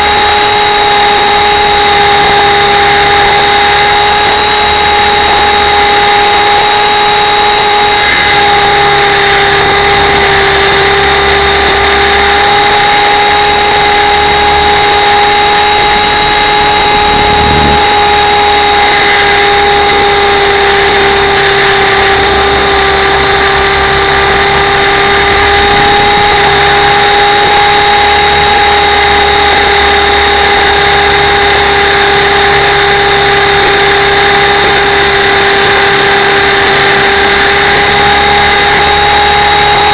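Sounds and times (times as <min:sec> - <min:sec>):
model helicopter motor whine: 0:00.0 - 0:39.9.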